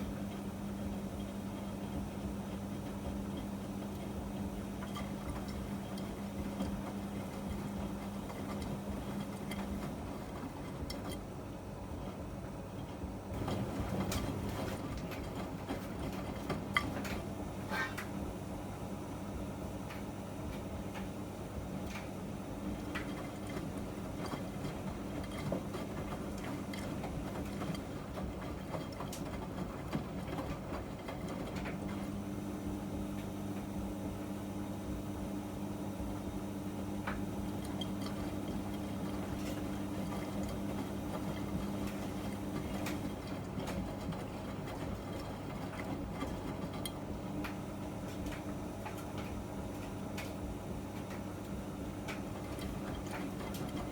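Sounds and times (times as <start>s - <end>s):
washing machine motor hum: 0.0s - 53.9s.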